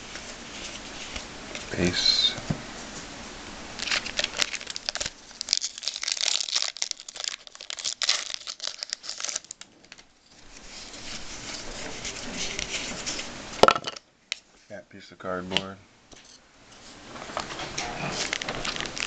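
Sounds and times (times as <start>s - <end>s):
foil wrapper crinkling and tearing: 3.7s - 13.3s, 17.8s - 19.0s.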